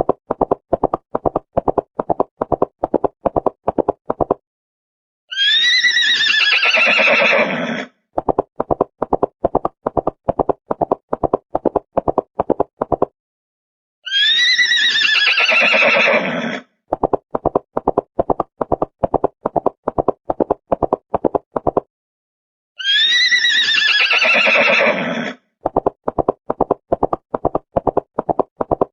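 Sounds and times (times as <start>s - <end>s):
horse whinnying: 5.3s - 7.9s, 14.1s - 16.7s, 22.8s - 25.4s.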